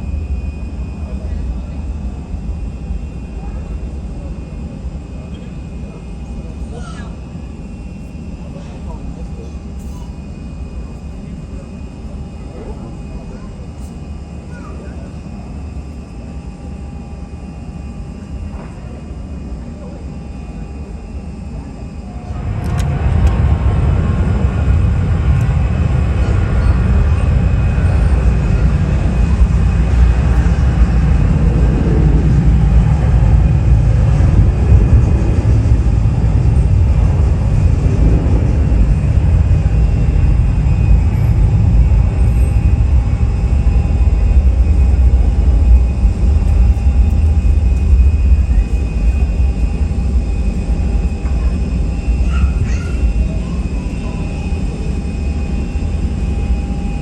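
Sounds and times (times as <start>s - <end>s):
jet engines rumbling: 0.0s - 57.0s.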